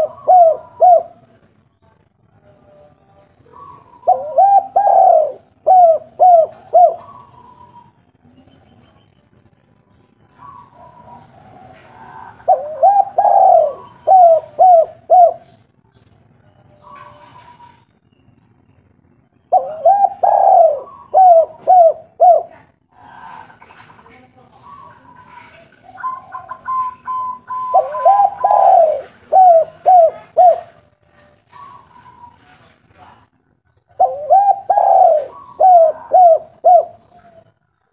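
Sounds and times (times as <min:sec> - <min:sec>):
dove cooing: 0:00.0 - 0:01.4, 0:03.4 - 0:08.0, 0:10.3 - 0:15.7, 0:16.7 - 0:17.8, 0:19.5 - 0:23.9, 0:24.5 - 0:32.6, 0:33.9 - 0:37.6.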